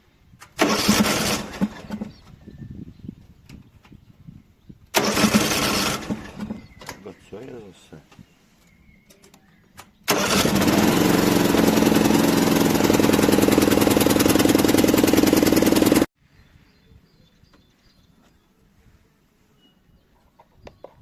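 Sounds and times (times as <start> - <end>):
air compressor buzzing: 10.1 - 16.1.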